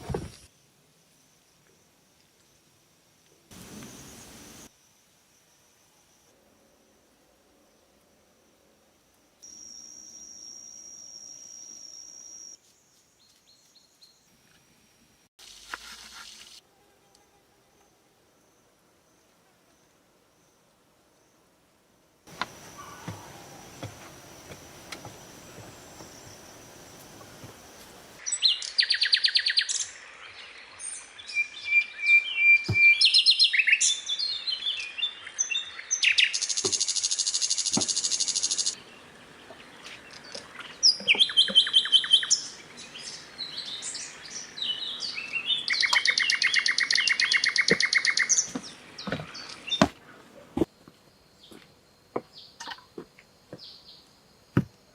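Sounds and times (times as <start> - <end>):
long pulsed bird trills: 9.4 - 12.6, 40.1 - 48.5
forest birds chirping trills: 9.4 - 14.4, 16.4 - 54.9.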